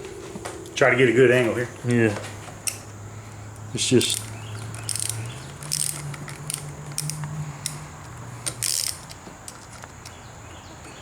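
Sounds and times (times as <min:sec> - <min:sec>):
low steady hum: 0:00.0 - 0:10.7
ratcheting driver clicking: 0:04.0 - 0:10.2.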